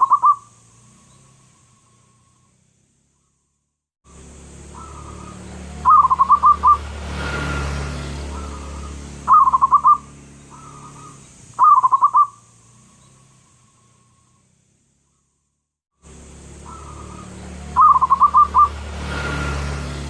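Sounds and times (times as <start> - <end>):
dove cooing: 0.0 - 0.4, 4.7 - 6.8, 8.3 - 12.4, 16.6 - 18.8.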